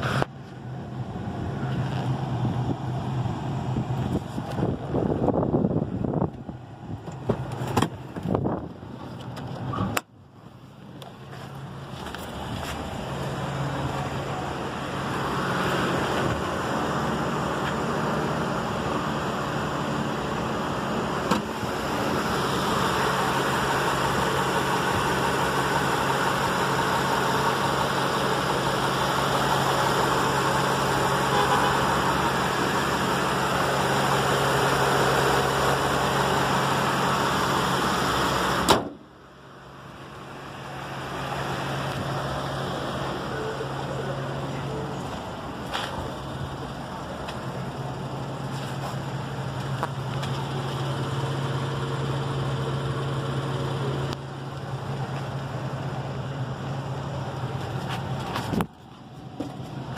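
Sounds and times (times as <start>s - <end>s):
car engine idling: 0.0s - 59.9s
car hood slamming shut: 38.6s - 39.0s.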